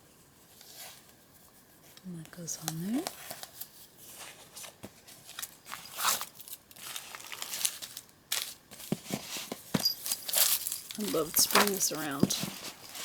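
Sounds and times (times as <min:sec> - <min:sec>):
paper pages rustling: 0:02.8 - 0:13.0.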